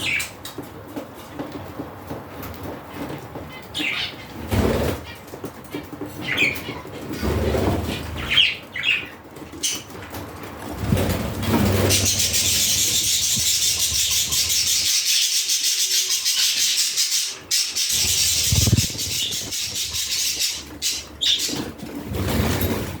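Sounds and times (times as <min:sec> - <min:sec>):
budgerigars chattering: 0:10.9 - 0:21.7.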